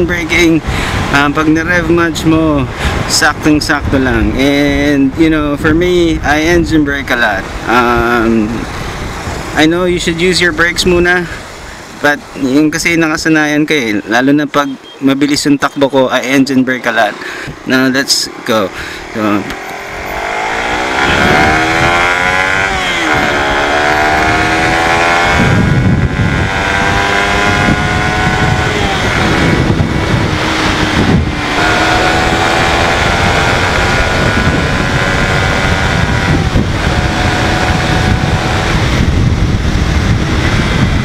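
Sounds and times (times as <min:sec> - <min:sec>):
wind on microphone: 0:00.0 - 0:13.0, 0:18.7 - 0:41.0
motorcycle engine accelerating: 0:19.1 - 0:41.0.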